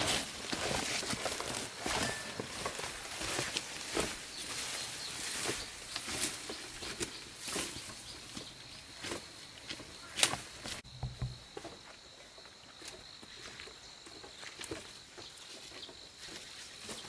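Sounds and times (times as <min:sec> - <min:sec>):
brief low thud: 0:10.9 - 0:11.5.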